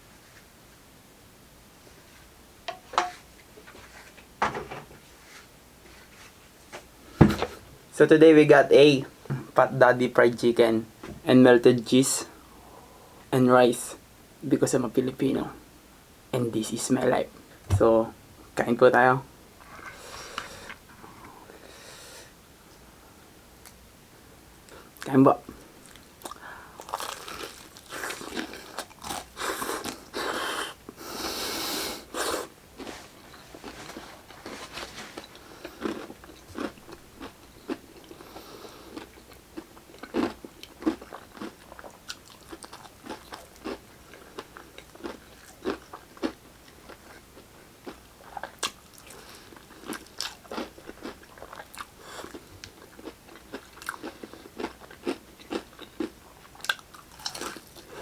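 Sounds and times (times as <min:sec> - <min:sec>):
crunching fried chicken: 0:25.8 - 0:30.8, 0:33.6 - 0:47.2, 0:47.8 - 0:58.0.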